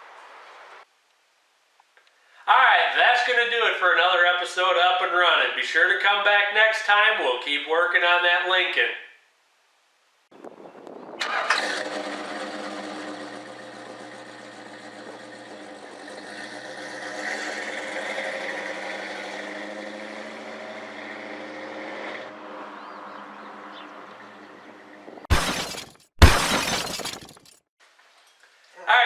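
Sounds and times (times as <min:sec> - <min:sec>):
car engine starting and running: 0:11.2 - 0:24.2.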